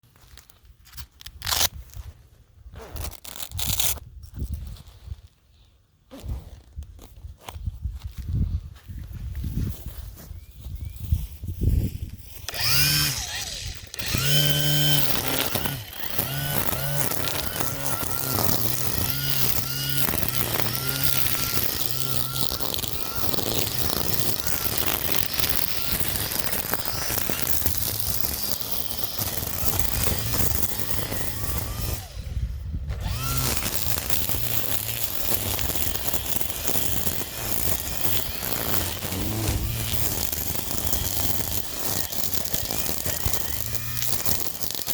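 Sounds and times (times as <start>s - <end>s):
string trimmer revving: 12.2s - 44.9s.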